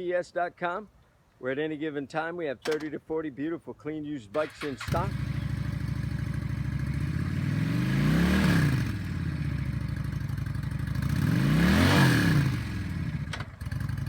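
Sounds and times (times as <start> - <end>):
sharp clicks: 2.6 - 3.0
motorcycle engine idling and revving: 4.4 - 14.0.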